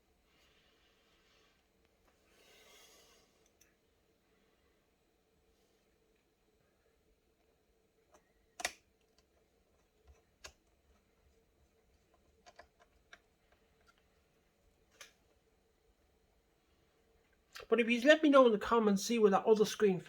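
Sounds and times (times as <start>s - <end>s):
clicks and taps of laptop parts: 8.1s - 9.4s, 12.1s - 14.0s.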